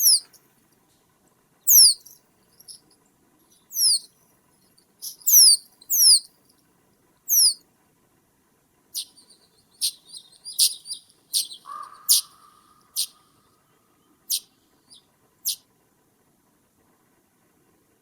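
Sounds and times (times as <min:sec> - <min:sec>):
bird giving sharp high calls: 0:00.0 - 0:00.3, 0:01.7 - 0:02.8, 0:03.7 - 0:04.1, 0:05.0 - 0:06.3, 0:07.3 - 0:07.6, 0:09.0 - 0:13.4, 0:14.3 - 0:14.6.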